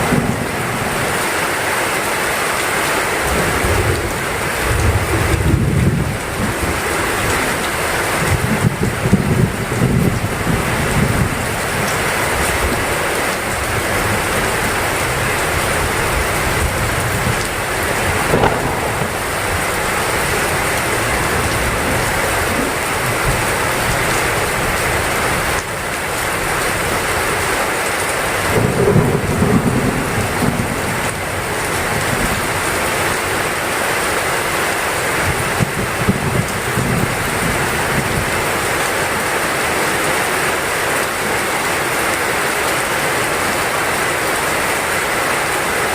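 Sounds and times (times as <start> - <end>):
heavy rain falling: 0.0 - 45.9
low rumbles of thunder: 8.2 - 11.9, 15.8 - 24.2, 28.4 - 32.4.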